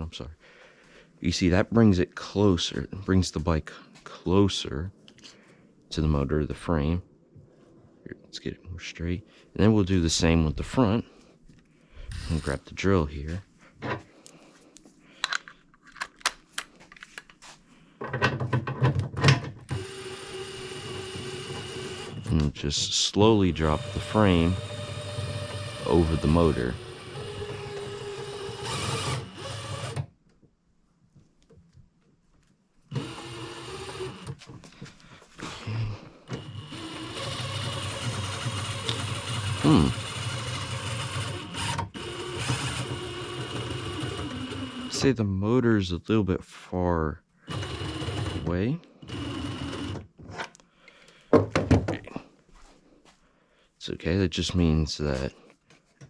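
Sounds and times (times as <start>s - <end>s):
cordless drill running under load: 12.1s - 12.6s, 19.7s - 22.4s, 23.5s - 30.0s, 32.9s - 34.4s, 36.3s - 45.1s, 47.5s - 50.0s.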